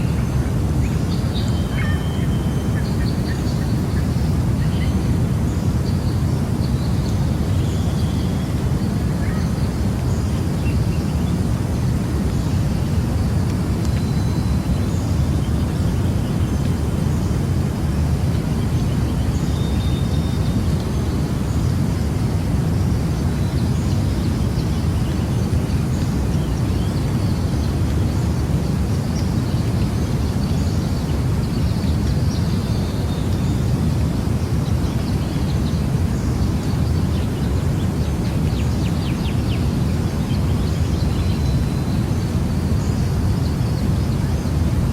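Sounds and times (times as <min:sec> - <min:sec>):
faint bird chirps and calls: 0:00.0 - 0:17.4.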